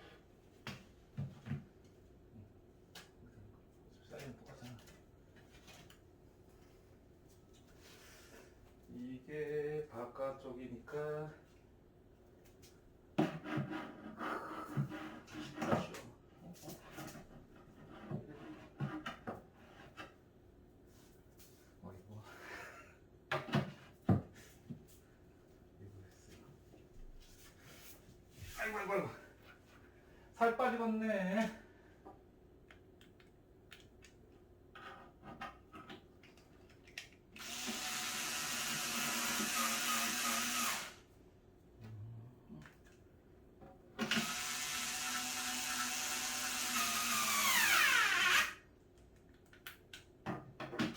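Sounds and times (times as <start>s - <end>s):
power drill running: 37.4s - 41.0s, 44.0s - 48.6s.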